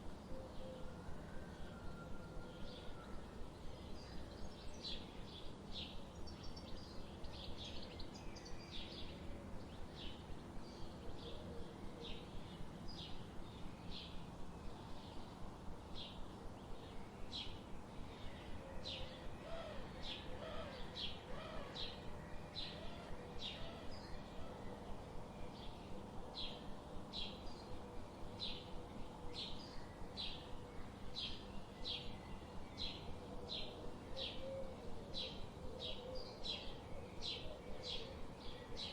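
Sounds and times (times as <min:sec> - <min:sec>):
background hiss: 0:02.6 - 0:38.9.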